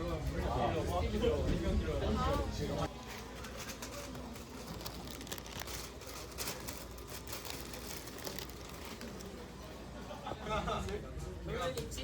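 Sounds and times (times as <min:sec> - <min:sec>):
light rustling and crinkling: 0:03.0 - 0:09.4.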